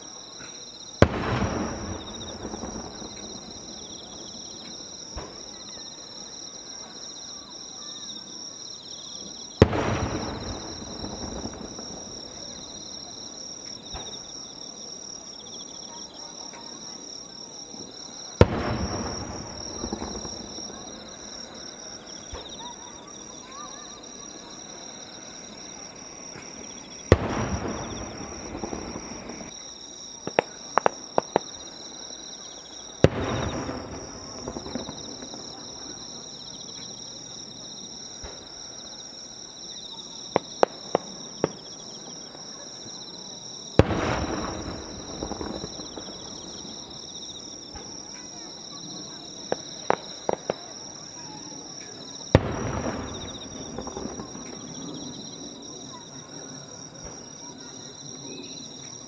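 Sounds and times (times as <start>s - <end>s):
firework booms with echoing rumbles: 0.9s - 6.2s, 9.4s - 42.8s, 43.4s - 55.8s
firework crackling: 1.0s - 5.6s, 9.6s - 14.5s, 18.3s - 29.6s, 30.2s - 36.5s, 43.7s - 48.3s, 49.4s - 51.2s, 51.8s - 55.4s.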